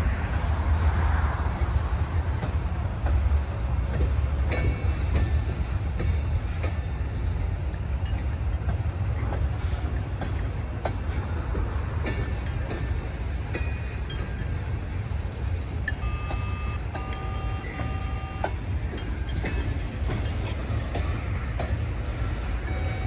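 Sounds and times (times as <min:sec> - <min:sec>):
freight train rumbling past: 0:00.0 - 0:23.0
wheels clicking over rails: 0:01.6 - 0:23.0
brief high wheel squeals: 0:15.9 - 0:20.3, 0:22.3 - 0:23.0.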